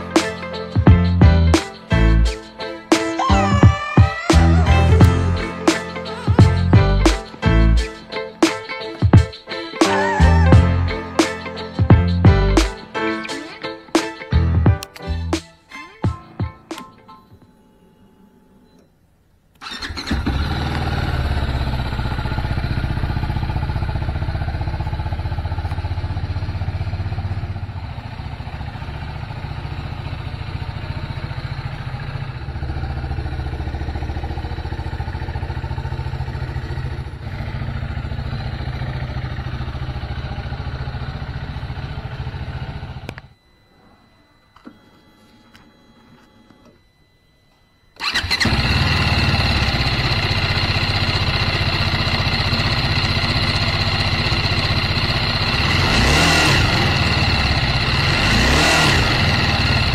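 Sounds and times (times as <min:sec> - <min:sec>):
motorcycle engine starting and running: 0:00.0 - 0:07.9, 0:10.0 - 0:12.9, 0:19.6 - 0:43.4, 0:48.0 - 0:59.9.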